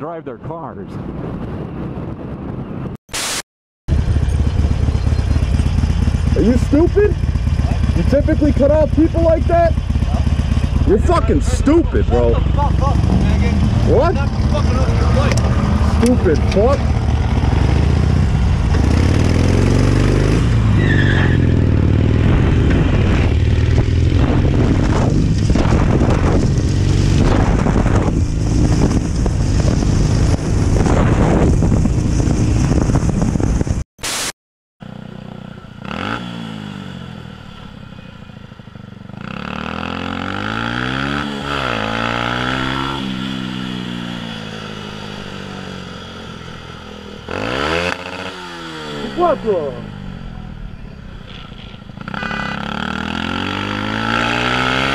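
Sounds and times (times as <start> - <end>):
wind noise: 0.7 - 3.0, 21.5 - 33.8
motorcycle engine: 3.9 - 33.8, 34.8 - 54.9.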